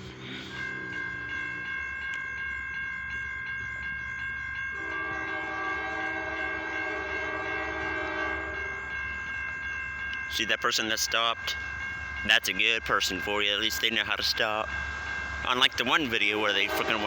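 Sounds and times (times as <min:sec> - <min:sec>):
crossing bell ringing: 0:00.0 - 0:17.0
locomotive air horn: 0:04.8 - 0:08.7, 0:16.7 - 0:17.0.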